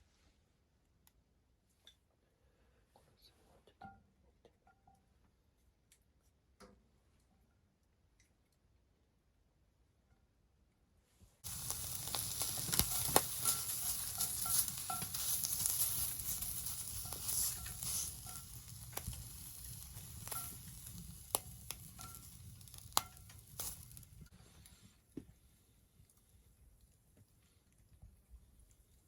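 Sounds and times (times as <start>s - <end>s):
fat popping: 11.4s - 24.0s
meat sizzling in a skillet: 11.4s - 24.3s.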